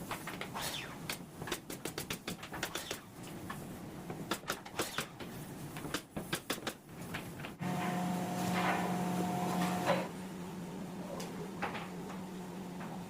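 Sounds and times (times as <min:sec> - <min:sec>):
steady low hum: 0:07.6 - 0:13.0.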